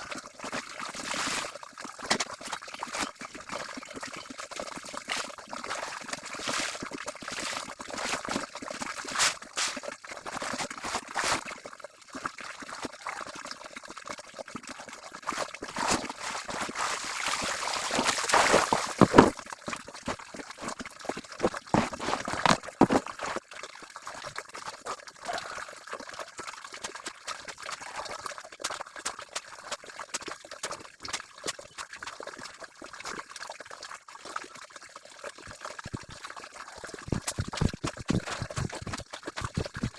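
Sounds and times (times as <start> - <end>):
water sloshing and splashing: 0.0 - 13.3, 15.1 - 33.4, 35.6 - 39.9.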